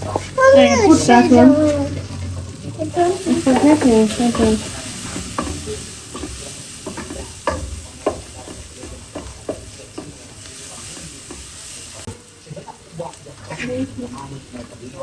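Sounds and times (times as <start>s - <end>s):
food sizzling in a frying pan: 0.0s - 15.0s
spoon scraping a pan: 3.0s - 11.7s.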